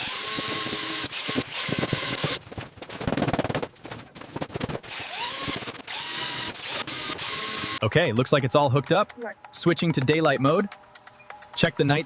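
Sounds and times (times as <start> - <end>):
sharp knocks and clatter: 0.4 - 7.2.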